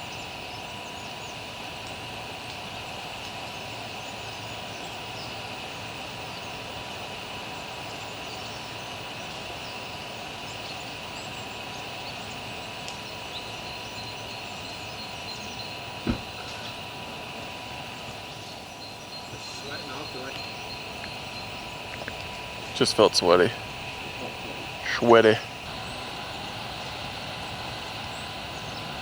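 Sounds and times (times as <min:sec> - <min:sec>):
faint chirps: 0:07.9 - 0:29.0
faint high whine: 0:10.6 - 0:29.0
dull thump: 0:16.0 - 0:16.5.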